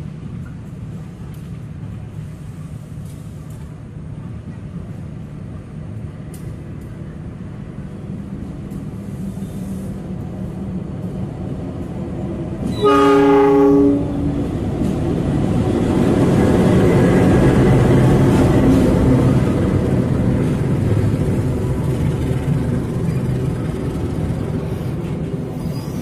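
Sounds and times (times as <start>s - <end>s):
train engine and wheels rumbling: 0.0s - 26.0s
train horn blast: 12.6s - 14.4s.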